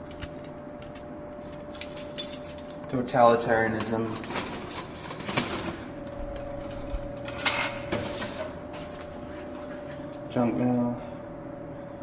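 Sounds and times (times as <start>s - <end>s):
steady hum: 0.0s - 12.0s
metallic clinks and rattles: 0.3s - 2.8s.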